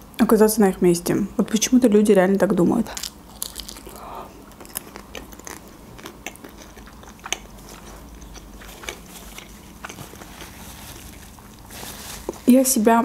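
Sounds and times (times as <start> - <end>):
wet chewing mouth sounds: 3.4 - 11.7.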